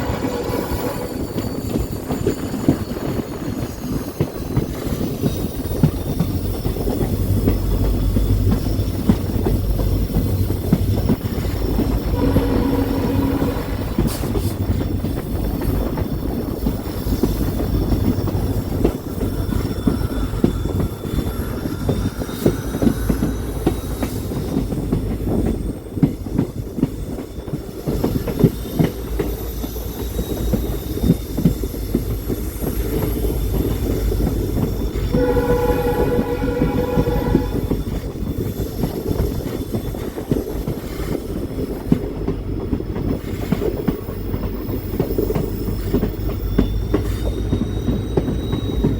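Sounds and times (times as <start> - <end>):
train horn: 0.0 - 1.3, 11.9 - 14.6, 35.1 - 38.1
train wheels clicking over rail joints: 0.0 - 48.9.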